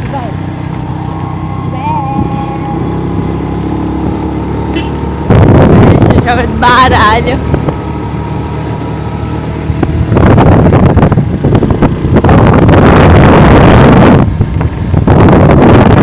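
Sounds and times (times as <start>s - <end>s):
low engine hum: 0.0s - 16.0s
wind buffeting microphone: 0.0s - 16.0s.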